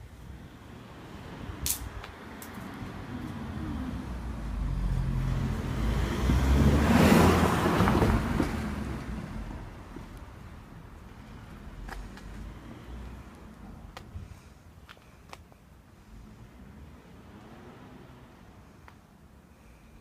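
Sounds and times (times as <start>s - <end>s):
vehicle driving past: 2.7s - 9.8s, 16.5s - 18.5s.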